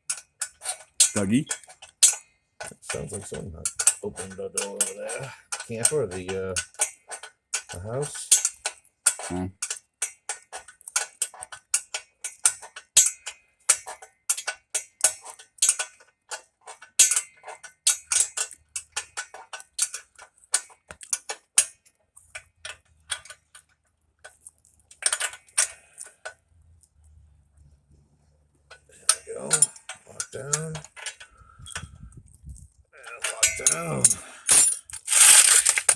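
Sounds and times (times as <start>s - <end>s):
ratchet wrench clicking: 34.5s - 35.9s.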